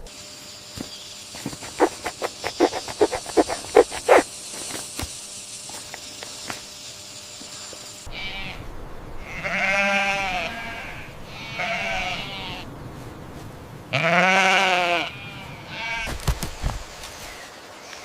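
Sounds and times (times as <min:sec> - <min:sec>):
farm animal bleating: 0:09.2 - 0:12.6, 0:13.9 - 0:16.1.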